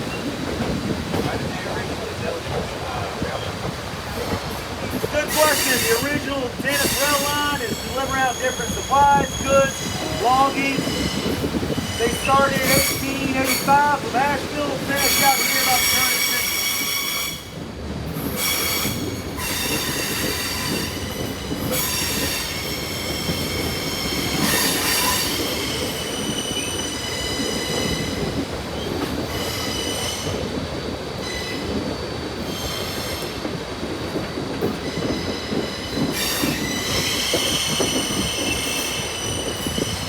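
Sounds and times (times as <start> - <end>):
train rumble: 0.0 - 40.0
train wheels squealing on rails: 0.0 - 40.0.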